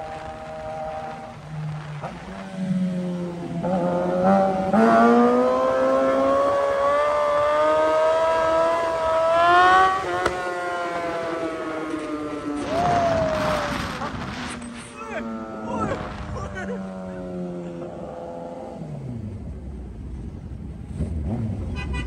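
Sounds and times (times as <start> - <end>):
motorcycle engine accelerating: 0.0 - 21.8.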